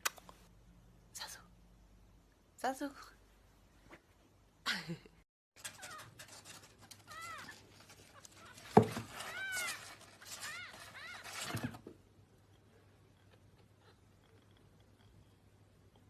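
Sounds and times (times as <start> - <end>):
cat meowing: 7.0 - 11.8.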